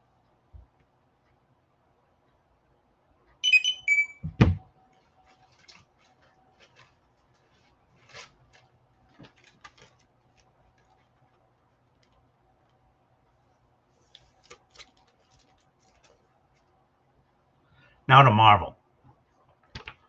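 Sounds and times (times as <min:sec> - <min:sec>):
electronic alert chime beeps: 0:03.4 - 0:04.2.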